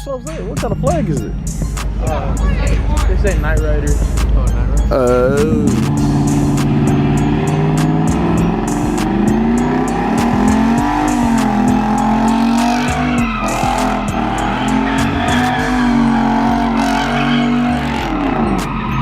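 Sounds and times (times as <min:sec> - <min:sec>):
tyres squealing: 0:00.0 - 0:19.0
car engine revving: 0:00.2 - 0:19.0.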